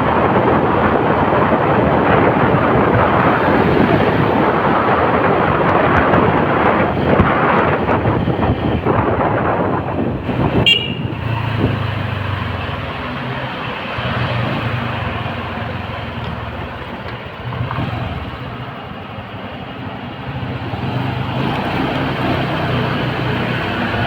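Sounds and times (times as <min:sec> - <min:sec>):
low engine hum: 0:00.0 - 0:24.0
rushing wind: 0:00.0 - 0:24.0
traffic noise: 0:00.0 - 0:24.0
short horn beep: 0:10.6 - 0:11.1.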